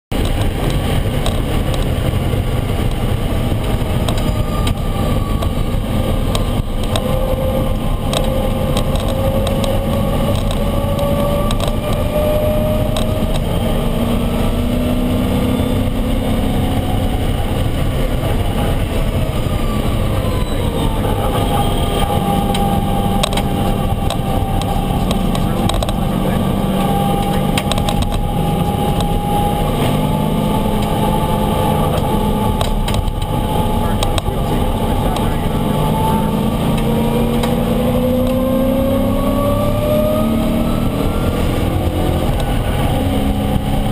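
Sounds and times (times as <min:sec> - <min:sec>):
race car engine at speed: 0:00.1 - 0:43.9
wind and road noise: 0:00.1 - 0:43.9.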